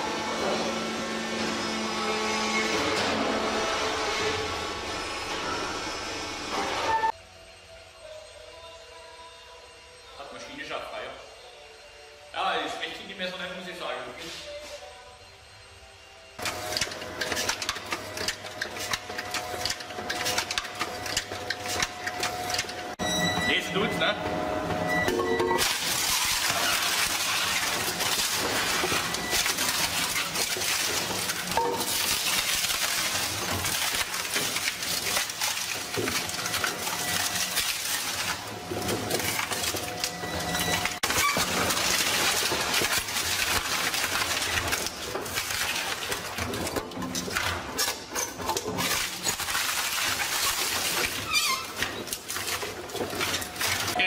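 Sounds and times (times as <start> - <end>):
wood cracking in a shredder: 16.4 - 54.0.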